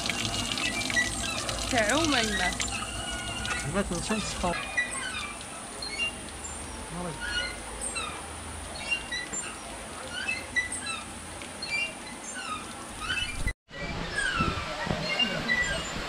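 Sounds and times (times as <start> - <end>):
birds chirping: 0.0 - 13.5.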